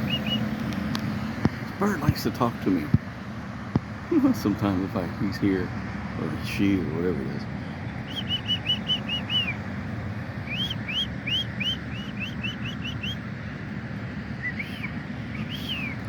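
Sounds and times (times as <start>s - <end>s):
bird whistling: 0.0s - 0.5s, 8.0s - 9.6s, 10.4s - 13.2s, 14.4s - 16.0s.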